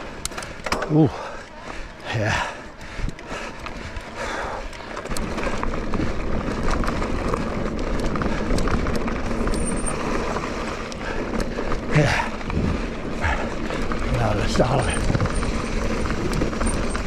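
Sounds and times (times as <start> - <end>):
bike rattles and clicks: 0.0 - 17.0
steady low rumble: 1.3 - 17.0
tyres crunching on gravel: 4.8 - 17.0.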